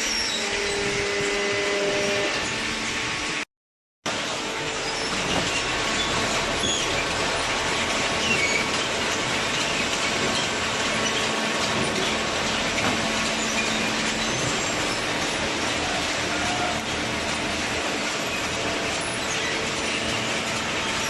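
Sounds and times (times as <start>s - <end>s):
baler mechanical noise: 4.1s - 21.0s
short high squeaks: 4.7s - 7.1s, 12.0s - 15.5s.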